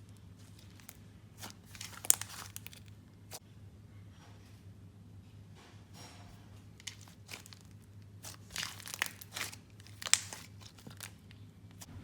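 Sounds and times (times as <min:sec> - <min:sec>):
slime squeezed with crinkly pops: 0:00.4 - 0:03.4, 0:06.8 - 0:11.9.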